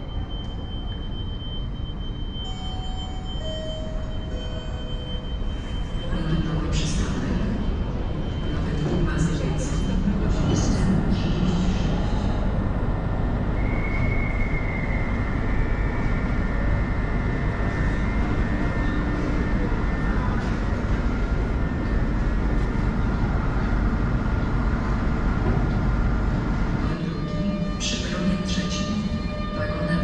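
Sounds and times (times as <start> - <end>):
train rumbling in station: 0.0 - 30.0.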